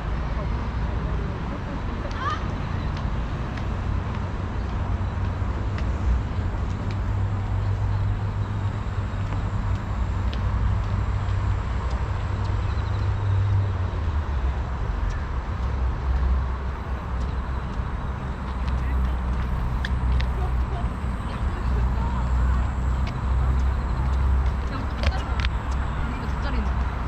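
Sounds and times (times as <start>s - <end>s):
low outdoor rumble: 0.0s - 27.0s.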